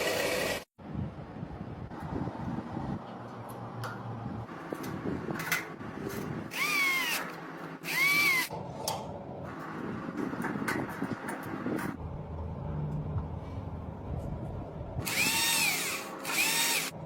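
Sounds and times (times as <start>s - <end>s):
small electric motor whirring: 6.5s - 8.5s, 15.0s - 17.0s.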